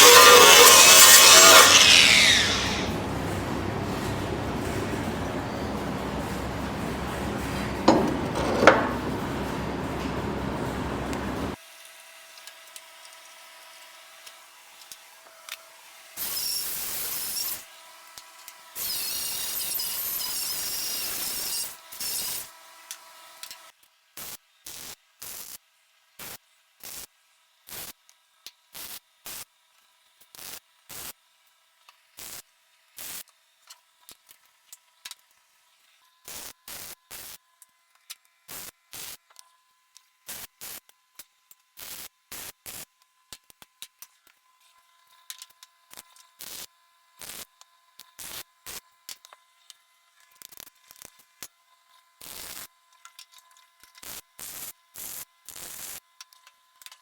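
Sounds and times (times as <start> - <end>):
welder welding: 0.0 - 11.6, 54.0 - 56.0
faint steady hum: 1.5 - 11.6.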